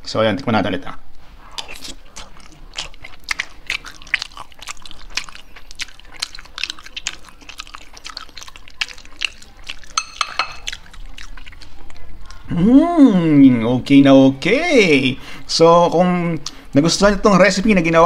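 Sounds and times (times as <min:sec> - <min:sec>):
person chewing crunchy food: 0:01.4 - 0:12.5.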